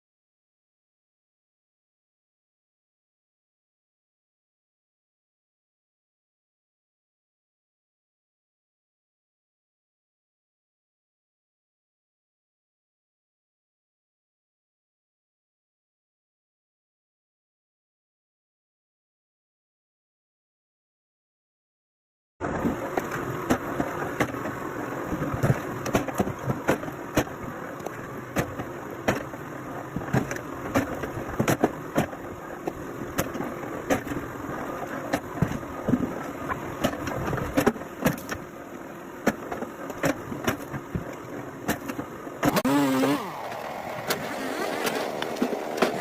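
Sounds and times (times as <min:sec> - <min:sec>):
machine running: 0:42.4 - 0:46.0
wavering pitched whine: 0:42.6 - 0:46.0.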